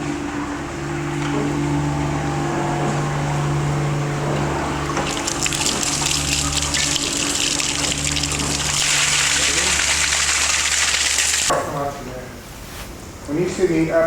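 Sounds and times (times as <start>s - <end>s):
steady mechanical hum: 0.0s - 14.0s
toilet flush water rushing: 4.8s - 11.5s.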